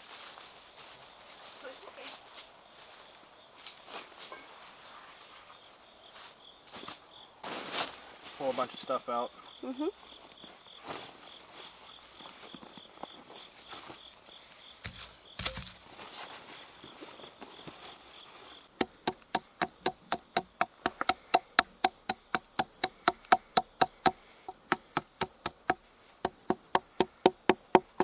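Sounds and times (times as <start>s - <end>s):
insects chirring: 0.2s - 28.0s
stake being hammered: 14.8s - 15.8s, 18.7s - 28.0s.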